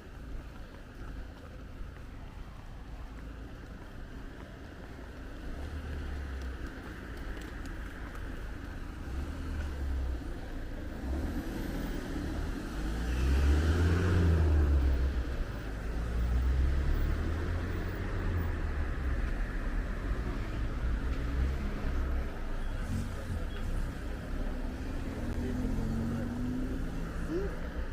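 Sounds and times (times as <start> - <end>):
car passing by: 11.0 - 22.2.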